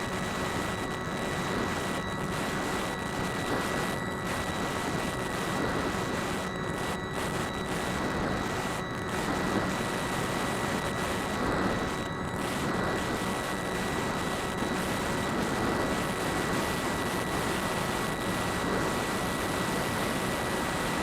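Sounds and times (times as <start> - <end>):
electric motor and propeller whine: 0.0 - 21.0.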